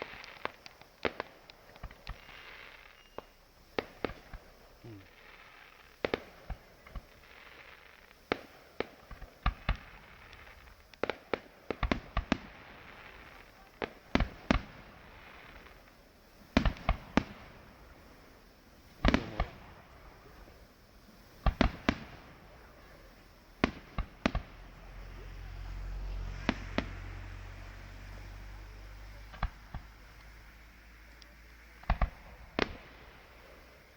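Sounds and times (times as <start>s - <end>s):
fireworks bangs: 0.0s - 33.9s
fireworks crackling: 0.0s - 33.9s.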